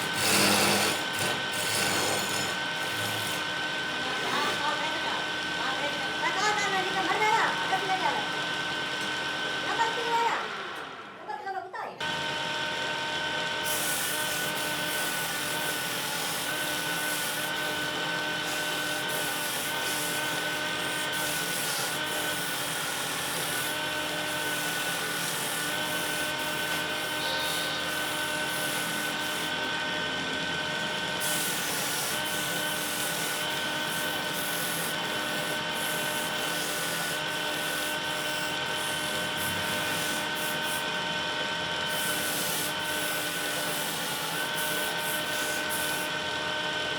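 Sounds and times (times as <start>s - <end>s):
electric wood lathe whining: 0.0s - 11.2s, 12.0s - 46.9s.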